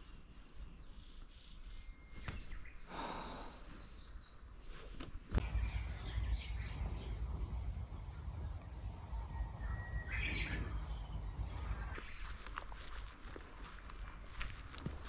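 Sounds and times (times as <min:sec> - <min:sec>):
outdoor background noise: 0:00.0 - 0:15.0
birds chirping: 0:05.4 - 0:12.0
low rumble: 0:05.4 - 0:12.0.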